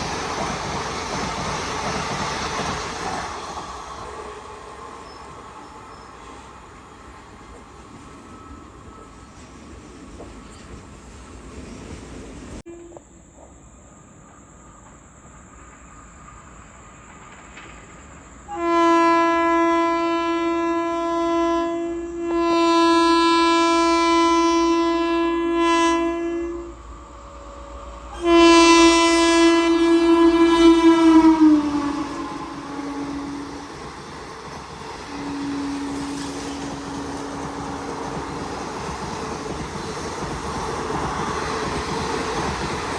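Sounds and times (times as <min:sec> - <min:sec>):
train air horn blasts: 0:12.7 - 0:13.1, 0:18.5 - 0:38.8.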